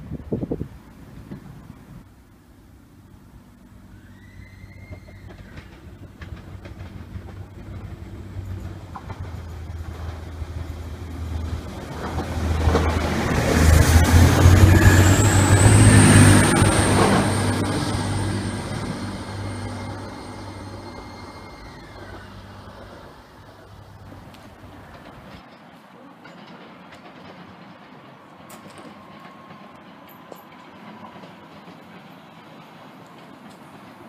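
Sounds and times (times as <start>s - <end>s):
train engine drone: 0.0s - 34.0s
wheels on rails: 3.2s - 34.0s.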